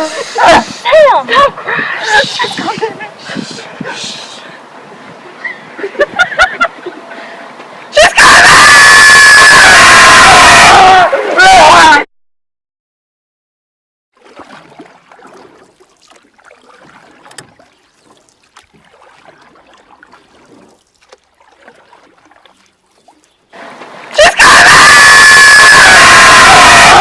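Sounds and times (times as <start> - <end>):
crowd yelling: 8.0 - 12.1, 24.2 - 27.0
water splashing: 14.2 - 24.4.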